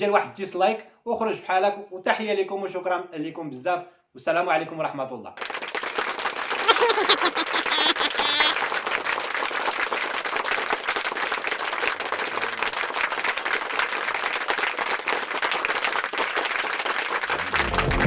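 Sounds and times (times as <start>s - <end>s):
crowd applause: 5.4s - 18.0s
music: 17.4s - 18.0s.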